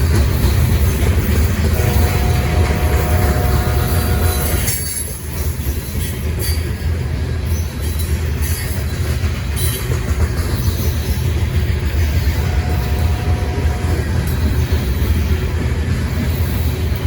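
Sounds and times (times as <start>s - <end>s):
train wheels rumbling on rail: 0.0s - 17.0s
high wheel squeal: 1.8s - 5.1s.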